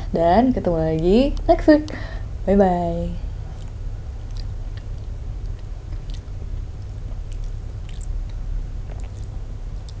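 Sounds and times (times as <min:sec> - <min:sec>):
steady low hum: 0:00.0 - 0:10.0
wet mouth clicks: 0:03.6 - 0:06.3, 0:07.0 - 0:10.0
person chewing and licking fingers: 0:03.6 - 0:10.0.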